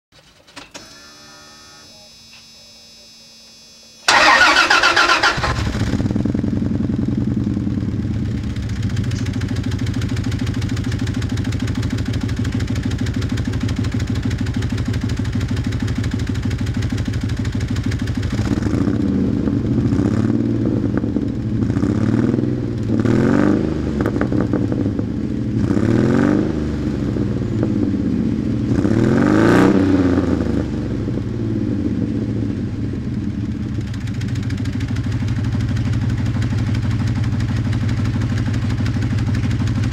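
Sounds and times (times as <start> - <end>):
engine idling with misfire: 4.0 - 22.0, 32.9 - 39.9
engine revving: 4.1 - 10.0, 18.3 - 24.9, 25.5 - 27.7, 28.6 - 30.9
truck engine starting: 4.1 - 11.3.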